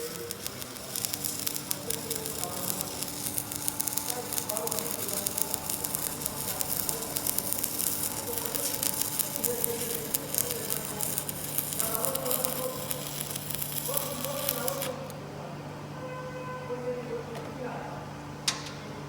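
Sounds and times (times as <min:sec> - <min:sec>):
welding arc crackling sizzle: 0:00.0 - 0:15.2.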